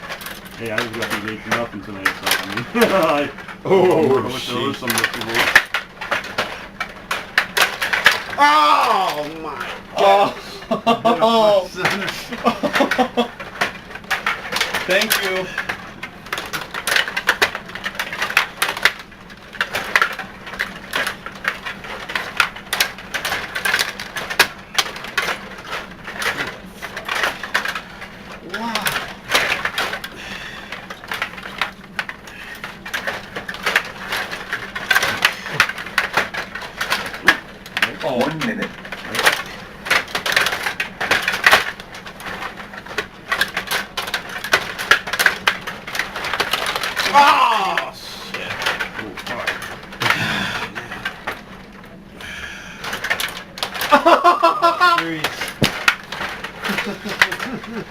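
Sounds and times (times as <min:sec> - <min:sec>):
table hockey rods clicking: 0:00.0 - 0:51.8, 0:52.5 - 0:57.9
puck knocking off boards: 0:53.9 - 0:56.0
puck knocking against boards: 0:55.6 - 0:56.0.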